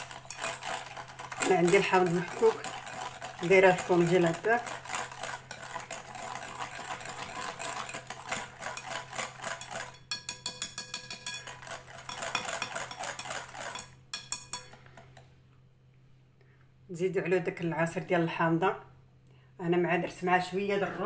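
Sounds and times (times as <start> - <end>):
clicks and scrapes against bowl: 0.0 - 15.3
utensil stirring mixture in bowl: 0.0 - 15.3.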